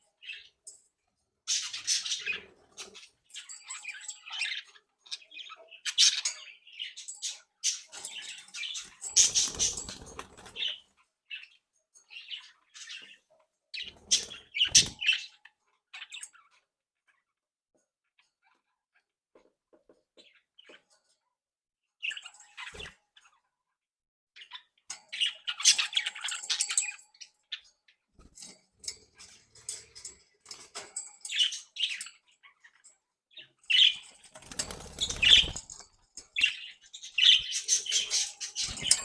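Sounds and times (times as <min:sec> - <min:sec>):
fluttering wingbeats: 0:09.0 - 0:10.7, 0:34.2 - 0:36.0
budgerigars chirping: 0:33.7 - 0:35.8, 0:36.4 - 0:39.0.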